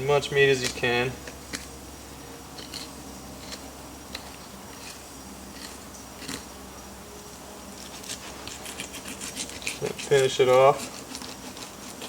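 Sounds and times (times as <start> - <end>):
faint hum: 0.0 - 12.0
knife scraping fish bones: 0.5 - 1.7, 2.5 - 6.5, 7.8 - 12.0.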